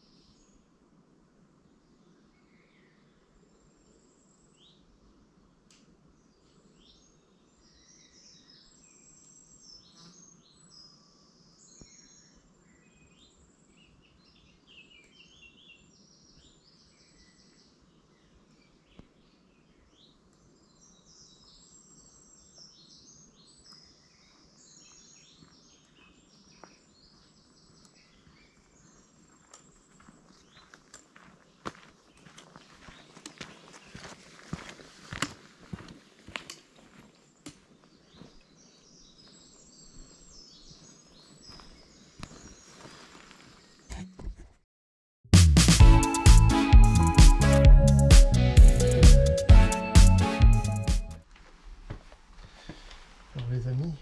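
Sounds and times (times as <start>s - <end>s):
low steady background hiss: 0.0s - 30.1s
birds chirping and trilling: 37.3s - 43.9s.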